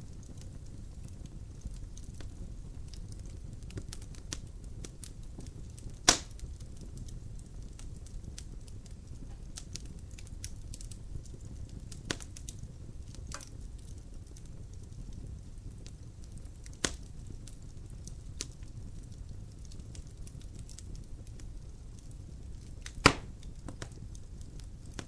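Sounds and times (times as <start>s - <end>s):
low rumble of flame: 0.0s - 25.0s
wood fire crackling: 0.0s - 25.0s
loud pop of fire: 5.4s - 6.6s, 12.1s - 12.5s, 16.7s - 17.1s, 22.8s - 24.0s.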